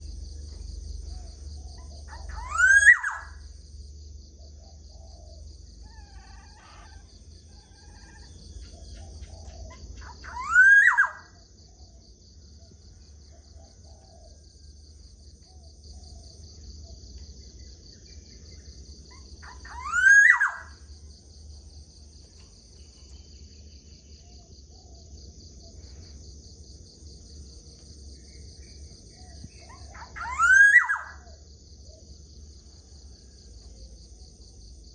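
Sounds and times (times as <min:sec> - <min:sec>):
low hum: 0:00.0 - 0:02.5, 0:03.2 - 0:10.3
high-pitched insect drone: 0:00.0 - 0:34.9
bird calling: 0:00.5 - 0:03.5, 0:04.6 - 0:11.4, 0:19.1 - 0:20.9, 0:29.1 - 0:31.4.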